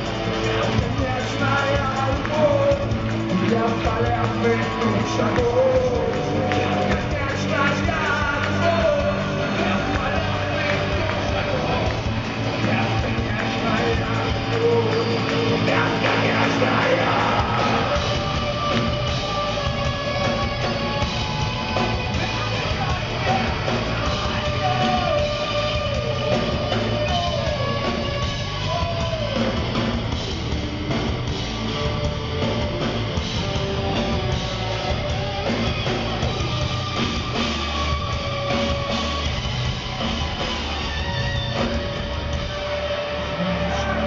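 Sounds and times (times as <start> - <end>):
heavy rock band playing: 0.0 - 44.0.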